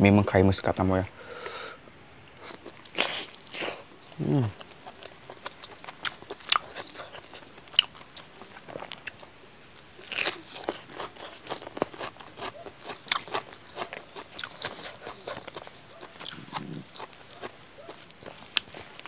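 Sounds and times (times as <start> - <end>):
person chewing food: 2.4 - 19.0.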